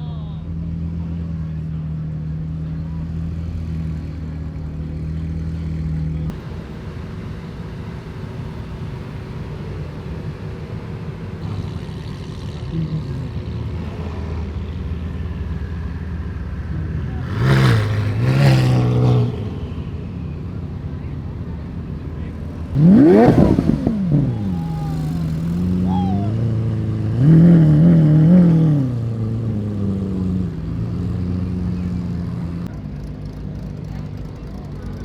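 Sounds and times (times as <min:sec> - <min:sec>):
car engines running: 0:00.0 - 0:35.0
car engine revving loudly: 0:11.4 - 0:20.1, 0:22.6 - 0:35.0.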